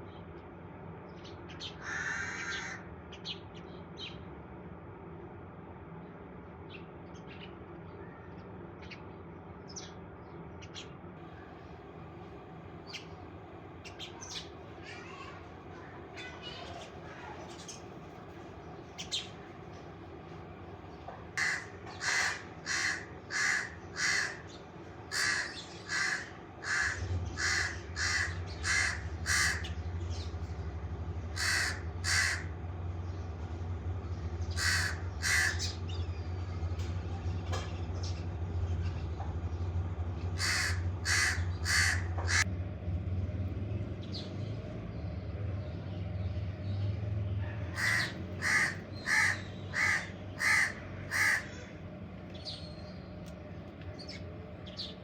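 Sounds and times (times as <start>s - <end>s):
steady low hum: 0.0s - 55.0s
crow cawing: 1.8s - 2.9s, 21.4s - 29.9s, 31.2s - 32.7s, 34.5s - 35.8s, 40.4s - 42.5s, 47.4s - 51.8s.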